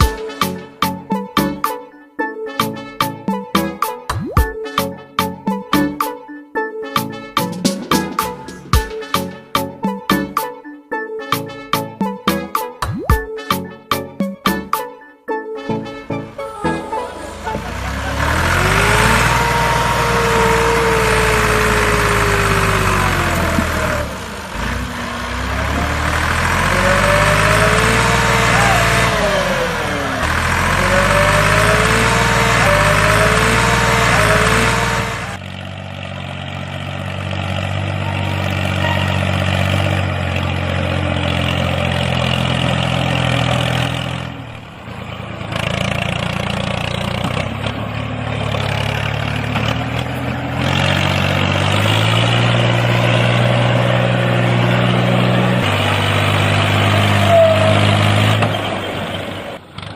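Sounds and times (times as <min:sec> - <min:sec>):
tractor engine idling: 0:16.8 - 0:59.9.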